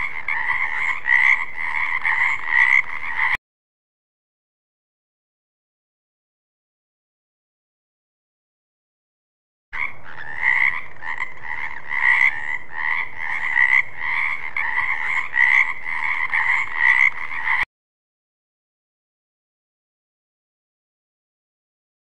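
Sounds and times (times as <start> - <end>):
frog croaking: 0.0 - 3.4, 9.8 - 17.6.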